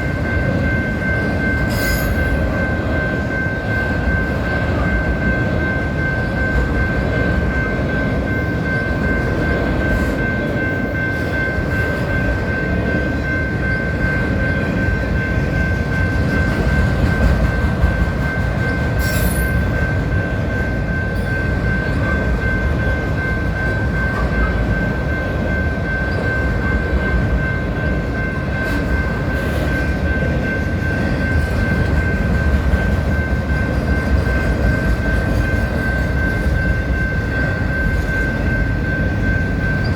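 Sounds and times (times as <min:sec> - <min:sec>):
freight train cars rumbling: 0:00.0 - 0:39.9.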